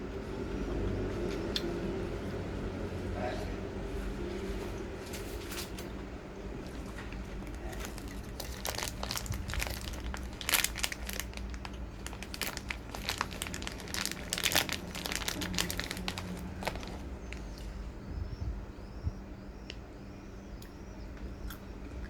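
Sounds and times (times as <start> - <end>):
plastic packaging crinkling: 6.7 - 17.8.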